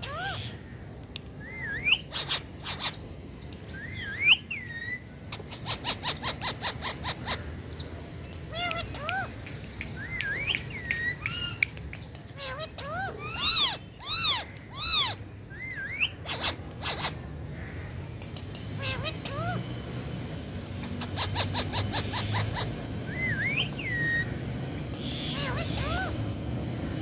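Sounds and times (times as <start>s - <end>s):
parakeet loud squawks: 0.0s - 0.6s, 1.4s - 3.0s, 3.8s - 7.5s, 12.4s - 17.9s, 18.8s - 19.6s, 20.9s - 24.3s, 25.0s - 26.2s
parakeet whistled chirps: 1.4s - 3.0s, 3.7s - 7.9s, 10.0s - 11.6s, 12.4s - 17.2s, 21.0s - 24.4s.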